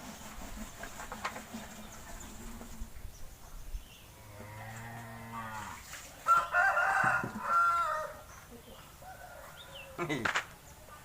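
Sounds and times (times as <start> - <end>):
cow mooing: 4.2 - 5.8.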